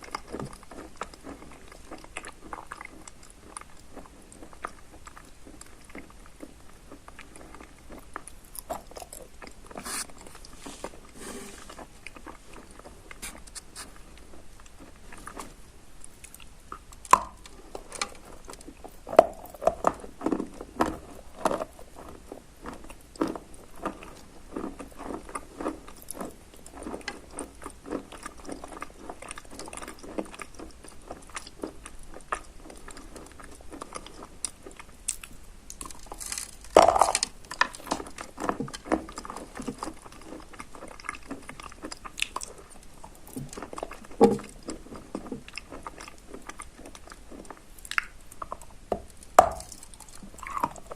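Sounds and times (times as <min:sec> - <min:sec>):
wet chalk crunching: 0:09.8 - 0:11.8.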